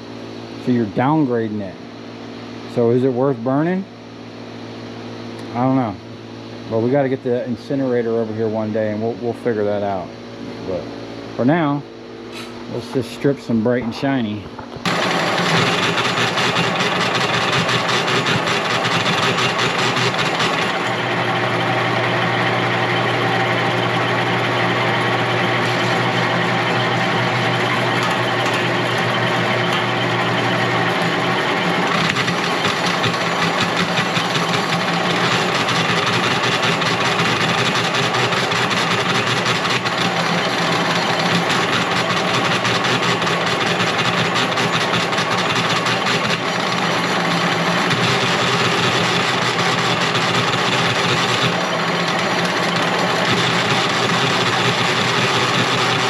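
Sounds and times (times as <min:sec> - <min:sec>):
wire-stripping machine humming: 0:13.8 - 0:56.0.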